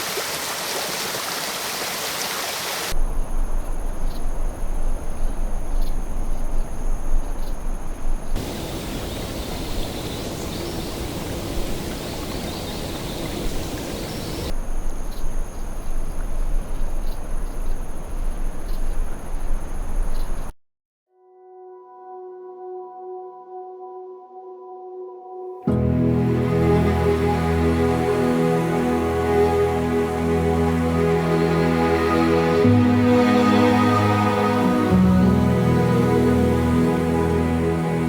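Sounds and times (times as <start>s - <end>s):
insects trilling: 3.7s - 16.0s
faint chirps: 8.4s - 14.5s
steady rushing noise: 8.4s - 14.5s.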